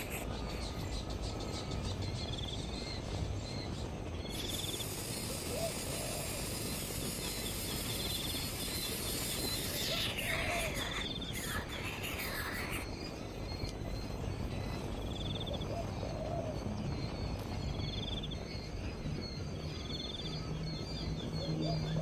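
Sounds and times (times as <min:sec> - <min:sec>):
insect trills: 0:00.0 - 0:02.9, 0:03.8 - 0:15.6
faint bird chirps: 0:00.0 - 0:22.0.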